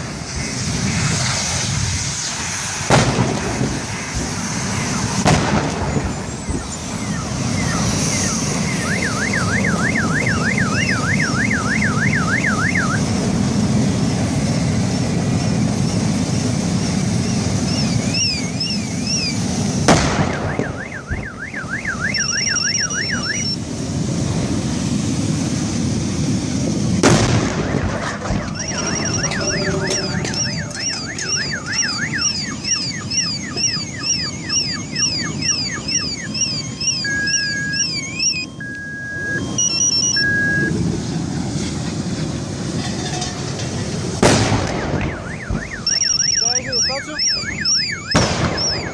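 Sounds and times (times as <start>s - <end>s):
explosion blasts: 0.5s - 7.5s, 19.8s - 21.3s, 26.9s - 34.5s, 44.1s - 45.7s, 48.1s - 48.9s
car alarms wailing and beeping: 6.0s - 13.2s, 17.2s - 19.5s, 20.1s - 23.7s, 27.6s - 40.9s, 44.6s - 48.9s.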